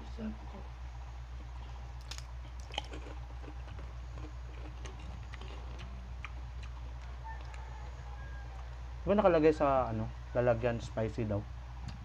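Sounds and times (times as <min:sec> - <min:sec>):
steady low hum: 0:00.0 - 0:12.0
crisp crunching and chewing: 0:01.6 - 0:07.7.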